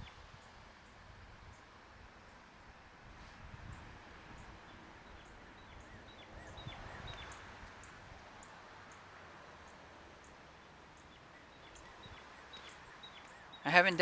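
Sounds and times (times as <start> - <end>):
birds chirping: 4.4 - 14.0.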